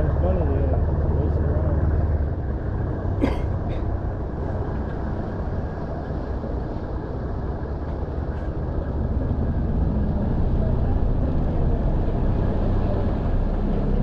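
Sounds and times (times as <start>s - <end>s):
outboard motor droning: 0.0s - 14.0s.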